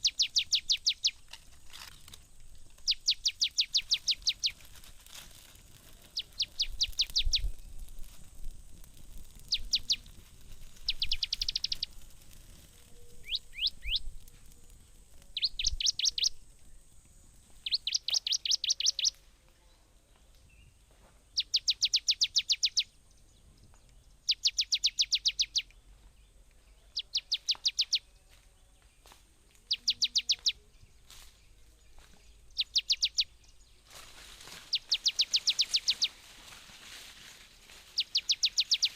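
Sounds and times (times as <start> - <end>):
songbird trilling: 0.0 - 1.4, 2.8 - 4.6, 6.0 - 7.7, 9.4 - 12.0, 12.9 - 14.1, 15.2 - 16.6, 17.6 - 19.2, 21.4 - 23.4, 24.0 - 25.8, 26.7 - 28.3, 29.6 - 30.8, 32.3 - 33.7, 34.7 - 36.2, 37.9 - 38.9.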